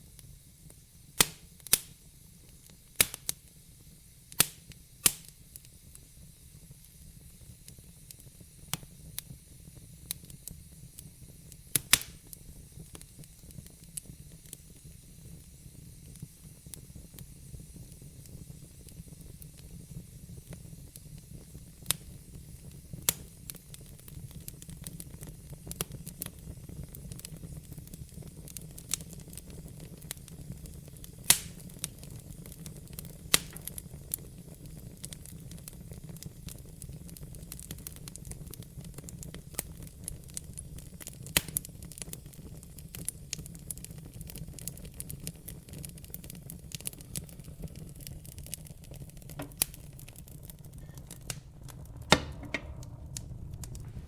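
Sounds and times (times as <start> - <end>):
fire crackling in fireplace: 0.0 - 54.0
sharp pops of fire: 0.0 - 54.0
low rumble: 50.6 - 54.0.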